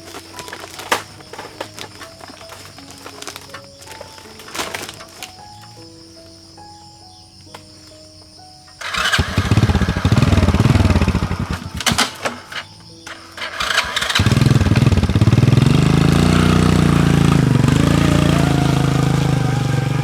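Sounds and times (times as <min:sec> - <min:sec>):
sharp clicks: 0:08.8 - 0:16.2
small engine running: 0:08.8 - 0:20.0.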